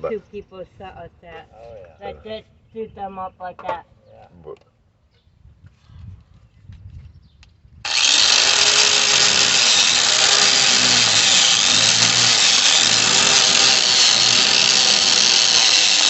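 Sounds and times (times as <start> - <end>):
power grinder cutting metal: 7.9 - 16.0.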